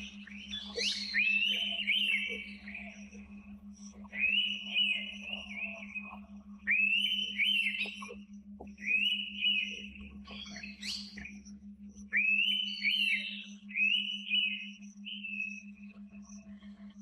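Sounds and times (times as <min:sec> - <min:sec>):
bird whistled call: 0:00.0 - 0:03.1, 0:04.1 - 0:08.1, 0:08.8 - 0:11.4, 0:12.1 - 0:15.8
steady low hum: 0:00.0 - 0:17.0.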